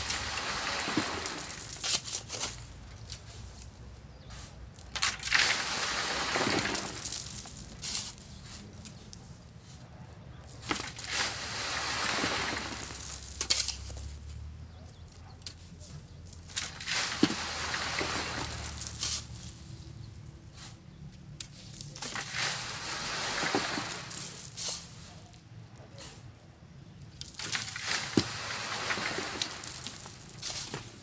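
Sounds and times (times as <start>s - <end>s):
sand pouring through sifting screen: 0.0s - 2.6s, 5.1s - 9.1s, 10.4s - 13.9s, 16.6s - 21.0s, 21.6s - 25.4s, 27.4s - 31.0s
shovel clicks and scrapes: 16.5s - 19.6s, 27.2s - 31.0s.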